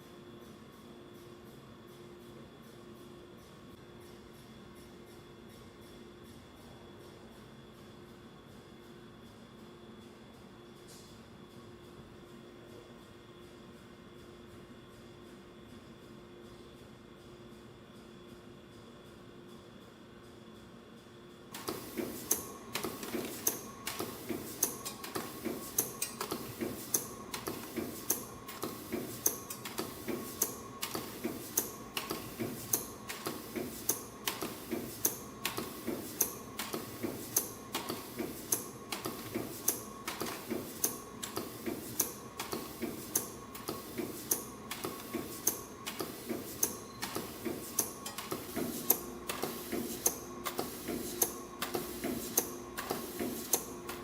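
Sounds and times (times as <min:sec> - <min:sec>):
faint machine whine: 0:00.0 - 0:41.3
steady machine hum: 0:00.0 - 0:54.0
machine clicking: 0:21.5 - 0:54.0.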